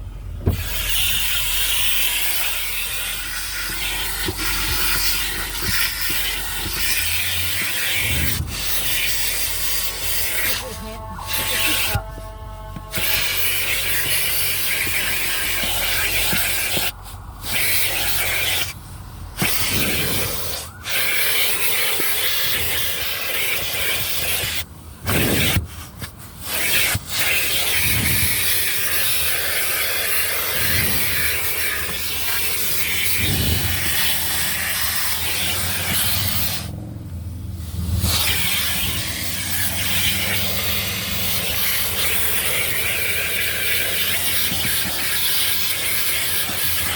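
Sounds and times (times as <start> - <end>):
car wash air dryers blowing: 0.0 - 46.9.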